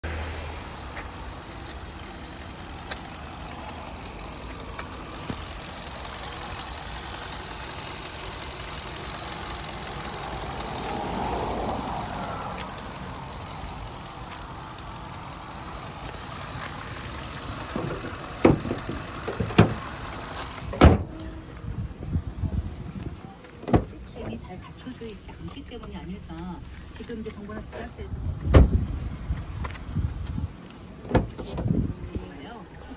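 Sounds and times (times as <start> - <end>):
car engine idling: 0.0 - 32.9
car hood slamming shut: 20.7 - 21.2, 28.5 - 28.8.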